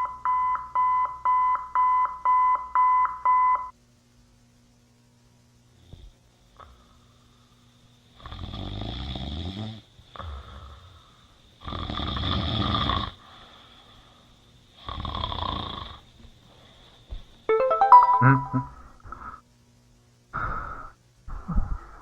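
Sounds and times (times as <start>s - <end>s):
breath: 6.0s - 7.9s, 10.1s - 11.5s, 13.2s - 14.4s, 16.4s - 17.1s, 18.9s - 19.5s, 20.3s - 22.0s
person snoring: 11.6s - 13.2s.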